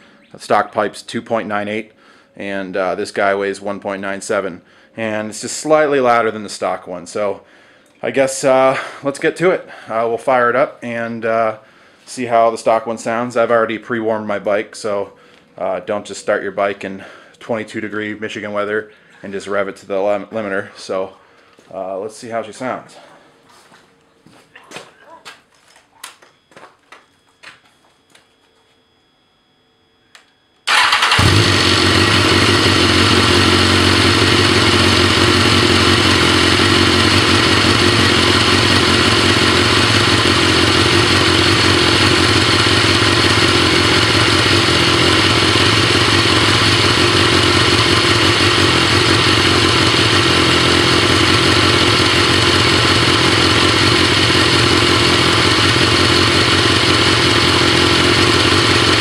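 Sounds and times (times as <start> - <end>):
motorcycle engine running: 30.7 - 59.0.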